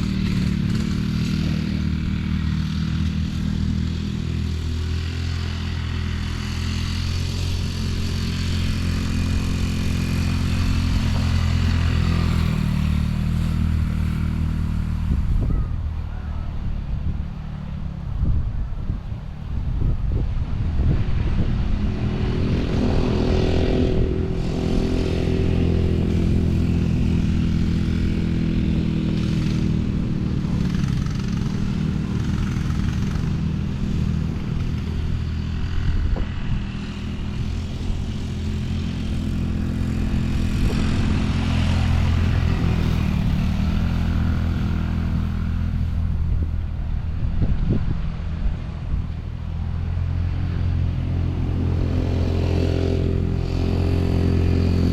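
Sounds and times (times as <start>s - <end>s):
off-road vehicle engine revving: 0.0s - 54.9s.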